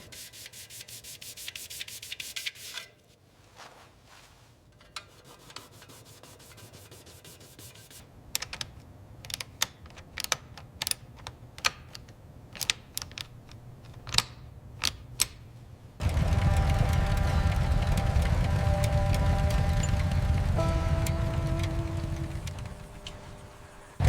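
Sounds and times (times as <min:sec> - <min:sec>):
low steady hum: 0:15.6 - 0:24.0.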